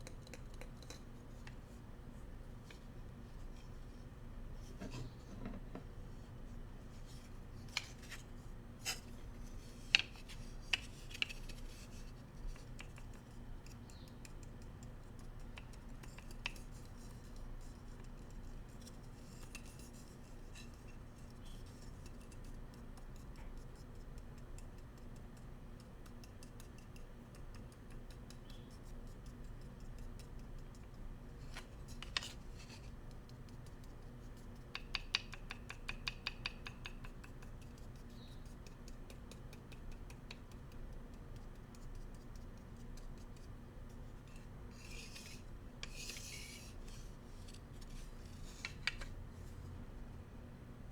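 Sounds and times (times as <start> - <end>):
bamboo utensils tapping together: 9.8 - 11.7, 34.5 - 41.8, 48.5 - 49.1.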